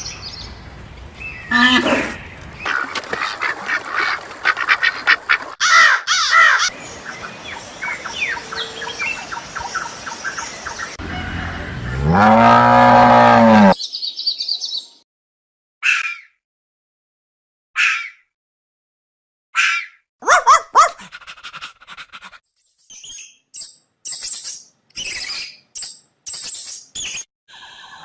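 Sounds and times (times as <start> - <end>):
birds chirping and calling: 0.0 - 10.9
low call of large animal: 1.5 - 2.2.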